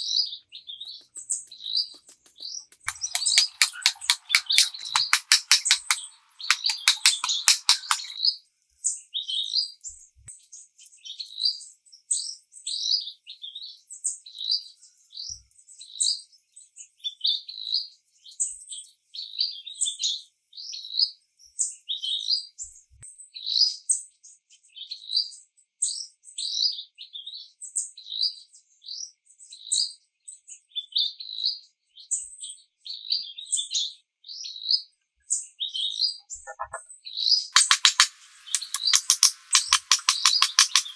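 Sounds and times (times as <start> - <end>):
bird chirping: 0.9 - 8.2, 36.5 - 36.8, 37.6 - 40.9
fast rattle of clicks: 0.9 - 8.2, 37.6 - 40.9.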